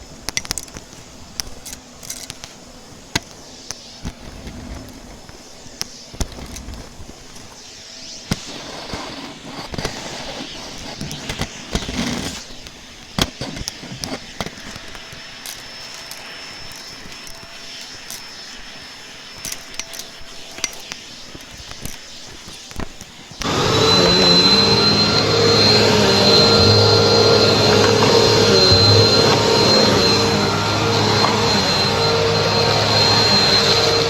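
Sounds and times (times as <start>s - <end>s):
faint high whine: 23.1s - 34.0s.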